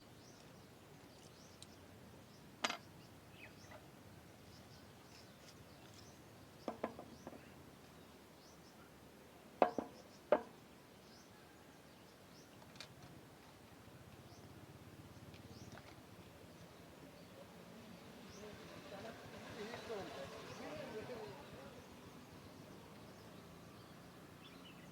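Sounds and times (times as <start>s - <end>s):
sharp knocks and clicks: 6.6s - 7.4s, 9.6s - 10.5s.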